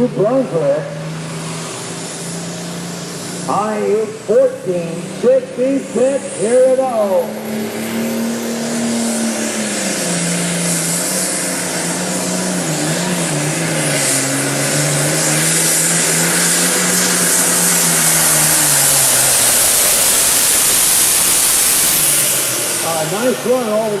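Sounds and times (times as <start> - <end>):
diesel tractor engine lugging: 0.0 - 24.0
loud steady hiss: 14.8 - 24.0.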